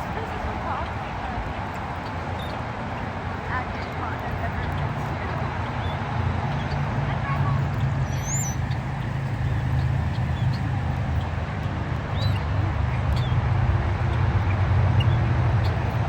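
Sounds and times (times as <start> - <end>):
high bird chirps: 4.7 - 11.4, 12.1 - 16.0.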